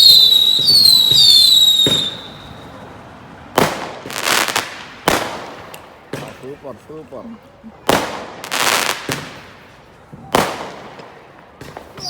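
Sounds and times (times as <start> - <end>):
firework bang: 0.0 - 2.8
firework whistles: 0.0 - 2.8, 11.6 - 12.0
firework crackling: 0.0 - 6.5, 7.8 - 12.0.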